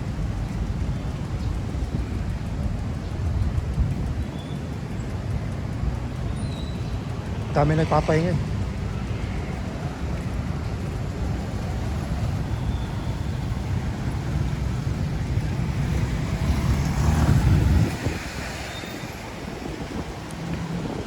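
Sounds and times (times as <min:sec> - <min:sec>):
urban traffic rumble: 0:00.0 - 0:21.0
wind on microphone: 0:08.9 - 0:21.0.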